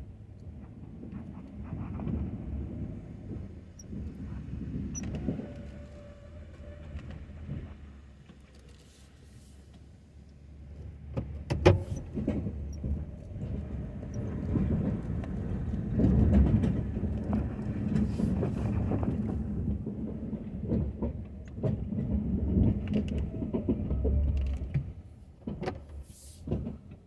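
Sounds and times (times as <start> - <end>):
pickup truck engine rumble: 0.0 - 27.0
clunks and knocks: 10.7 - 27.0.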